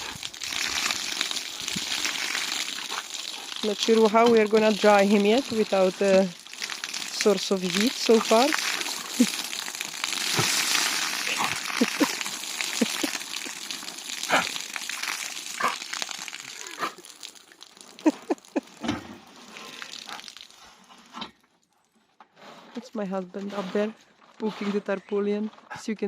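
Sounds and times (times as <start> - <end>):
rainwater pouring off roof: 0.0 - 21.1
dog snapping at water: 14.1 - 17.1.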